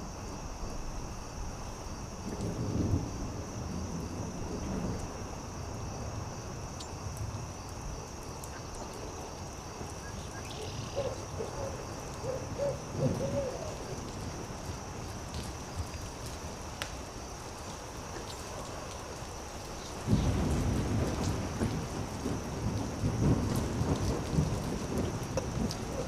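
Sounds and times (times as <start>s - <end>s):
campfire crackling: 0.1s - 26.0s
owl hooting: 10.3s - 13.8s.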